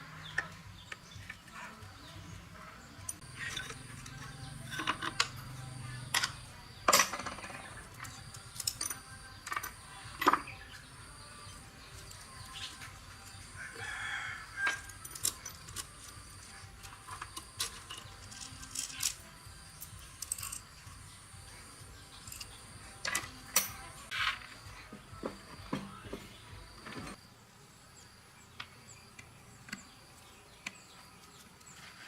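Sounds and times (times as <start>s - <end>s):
clinks and knocks of motorbike work: 3.0s - 10.9s, 14.4s - 27.2s
rooster crowing: 13.5s - 15.0s.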